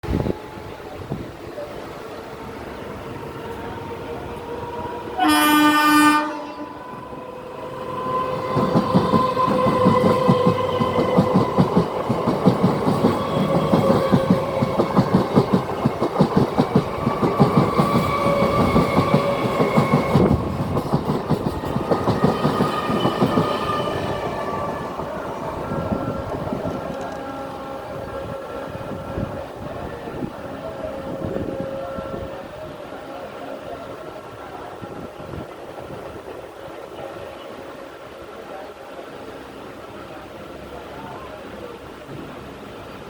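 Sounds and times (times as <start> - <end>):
train hum: 0.0 - 43.0
train horn: 3.6 - 11.4, 17.3 - 20.6, 22.1 - 33.9
train wheels clattering: 8.4 - 25.1.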